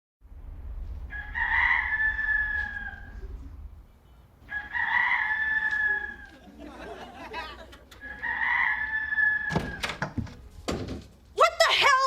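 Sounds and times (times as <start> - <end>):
rooster crowing: 1.1 - 3.3, 4.5 - 6.4, 8.0 - 9.8.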